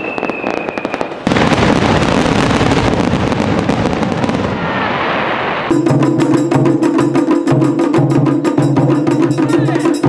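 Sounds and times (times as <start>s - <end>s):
firework cracks: 0.0s - 5.8s
firework whistle: 0.0s - 5.8s
dense firework crackling: 0.0s - 5.9s.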